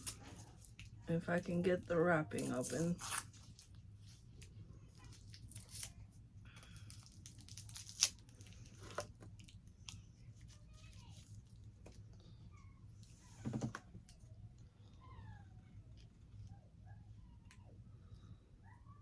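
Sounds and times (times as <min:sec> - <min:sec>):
candy wrapper crinkling and tearing: 0:04.4 - 0:10.1.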